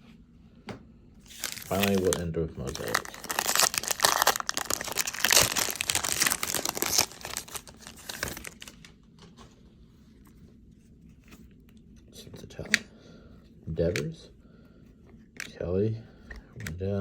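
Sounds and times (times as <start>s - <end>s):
wrapper tearing and crinkling: 1.3s - 8.9s.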